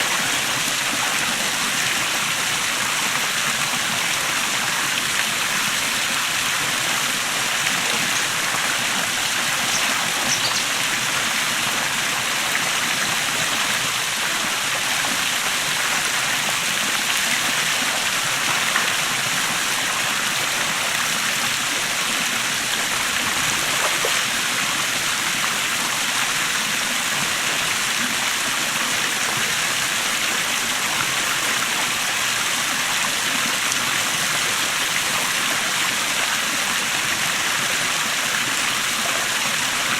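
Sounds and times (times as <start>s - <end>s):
water splashing over rocks: 0.0s - 39.9s.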